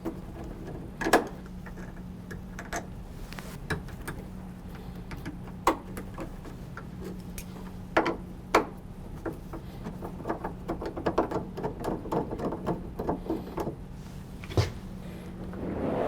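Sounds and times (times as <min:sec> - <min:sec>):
small clicks of hand work on hardware: 0:03.7 - 0:11.4
steady low hum: 0:12.9 - 0:16.0.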